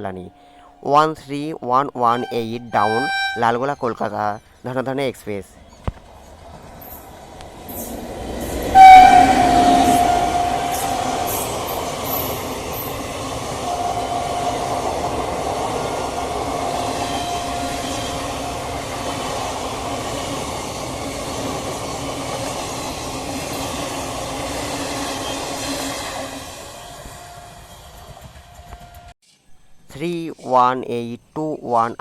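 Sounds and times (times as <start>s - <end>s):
drawn-out whining tone: 2.0s - 4.7s, 5.7s - 29.1s
train wheels rumbling on rails: 5.7s - 29.1s.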